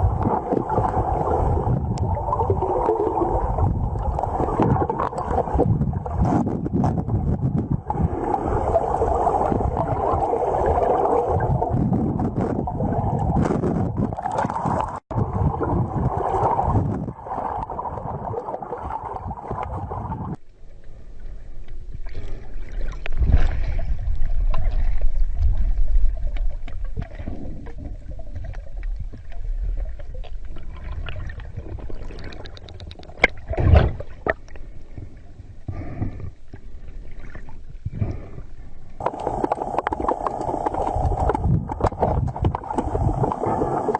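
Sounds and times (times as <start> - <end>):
underwater rumble and gurgle: 0.0 - 43.9
underwater clicks and knocks: 22.9 - 36.6, 39.0 - 43.3.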